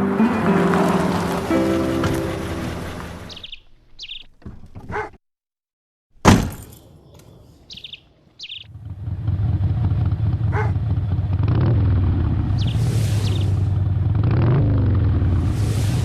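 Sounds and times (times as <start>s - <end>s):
motorcycle engine rumble: 0.0s - 4.9s, 7.0s - 16.0s
birds chirping: 0.0s - 5.2s, 6.9s - 8.8s, 12.4s - 13.8s
loud thump: 6.2s - 6.8s.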